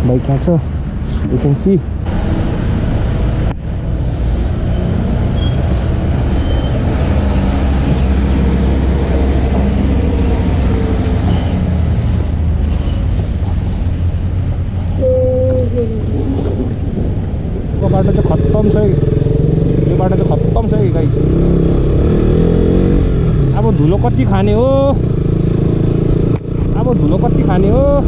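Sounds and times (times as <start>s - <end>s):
short held tone: 15.0s - 16.0s.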